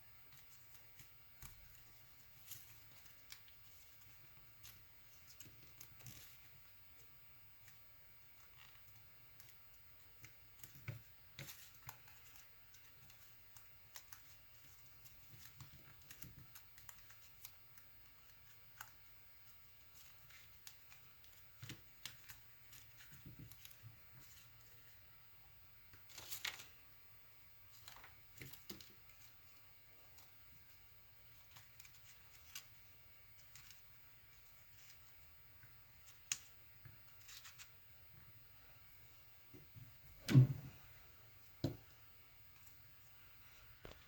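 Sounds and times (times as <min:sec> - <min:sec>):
paper being folded and creased: 0:25.9 - 0:26.8, 0:37.1 - 0:37.8.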